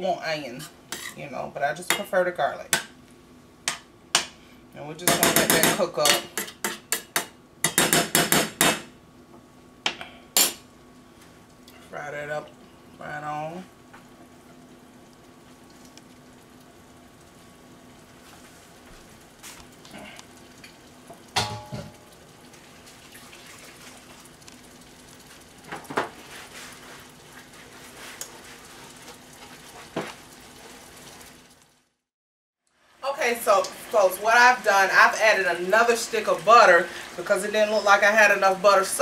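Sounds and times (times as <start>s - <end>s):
food sizzling in a frying pan: 12.4s - 32.0s, 32.8s - 39.0s.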